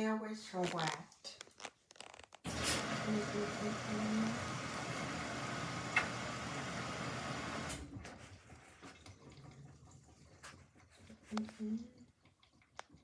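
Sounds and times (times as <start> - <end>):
water rushing into washing machine: 2.5 - 11.2.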